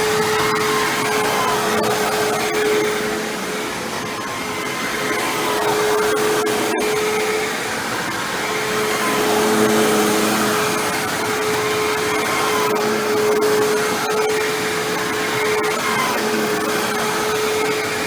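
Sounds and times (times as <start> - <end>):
vacuum cleaner running over carpet: 0.1 - 18.0.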